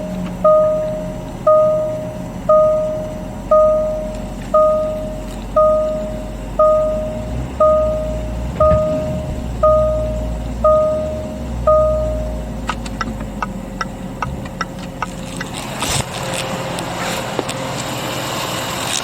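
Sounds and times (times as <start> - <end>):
car warning chime bong: 0.0 - 14.8
car engine running: 0.0 - 19.0.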